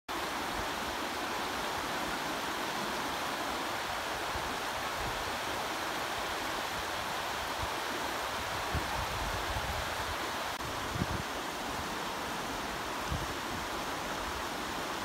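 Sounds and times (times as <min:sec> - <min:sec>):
river flowing: 0:00.1 - 0:15.0.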